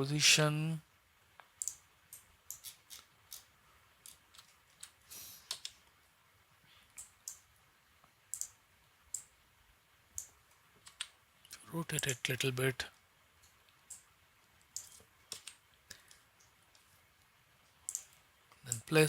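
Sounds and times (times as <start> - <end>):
mouse and keyboard clicks: 1.5 - 5.8, 8.3 - 9.3, 10.2 - 11.2, 14.7 - 15.6, 17.9 - 18.1.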